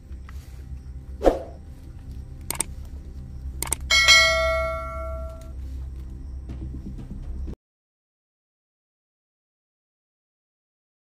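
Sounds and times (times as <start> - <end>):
steady low hum: 0.0 - 7.6
sharp clicks: 2.4 - 2.8, 3.6 - 4.0
bell chime: 3.9 - 5.5.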